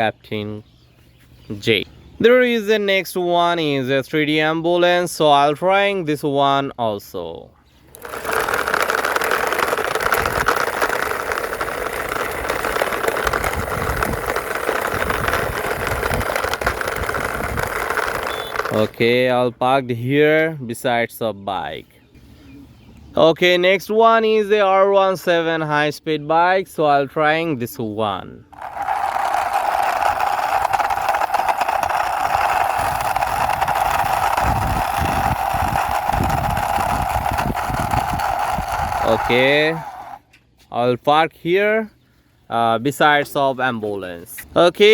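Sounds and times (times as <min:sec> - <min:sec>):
toy wheels rolling along wall: 0:07.9 - 0:19.2, 0:28.5 - 0:40.2.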